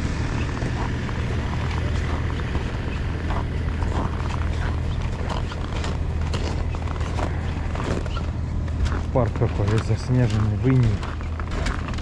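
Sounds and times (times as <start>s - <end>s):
footsteps crunching on frozen snow: 0.4s - 12.0s.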